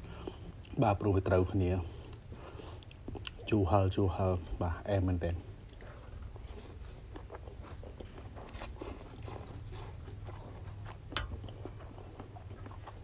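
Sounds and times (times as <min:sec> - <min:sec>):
person slurping and chewing noodles: 0:01.8 - 0:03.6, 0:05.4 - 0:13.0.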